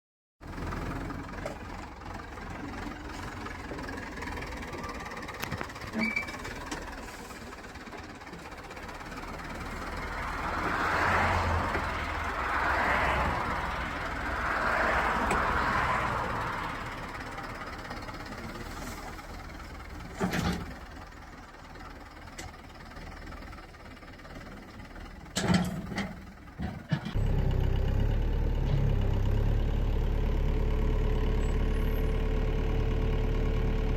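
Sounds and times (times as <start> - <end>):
tractor diesel engine idling: 0.4 - 33.9.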